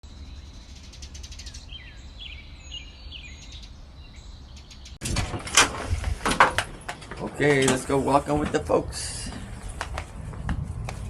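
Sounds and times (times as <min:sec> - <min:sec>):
small birds chirping: 0:00.0 - 0:05.0
clatter of knocks and rattles: 0:05.0 - 0:08.7.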